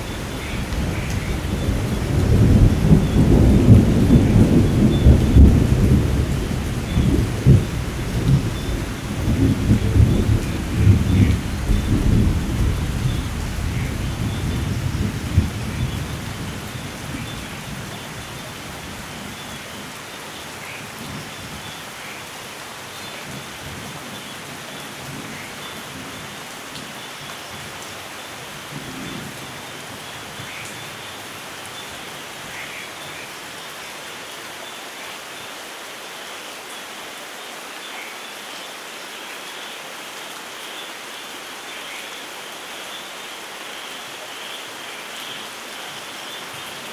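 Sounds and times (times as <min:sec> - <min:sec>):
thunder rumbling: 0:00.0 - 0:18.0
steady rain falling: 0:00.0 - 0:46.9.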